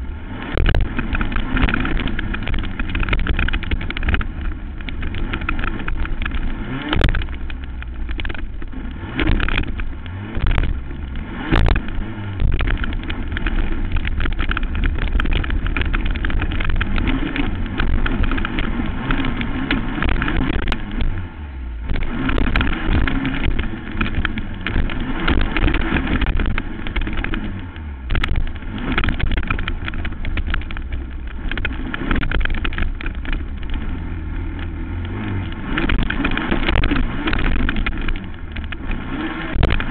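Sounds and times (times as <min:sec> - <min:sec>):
knocks and rattles: 0:00.0 - 0:39.9
quad engine revving: 0:00.0 - 0:39.9.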